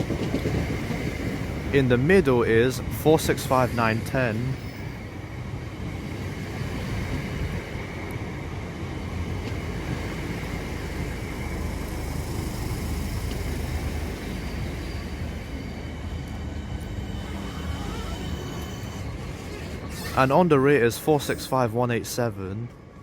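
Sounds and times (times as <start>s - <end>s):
train wheels and motors: 0.0s - 23.0s.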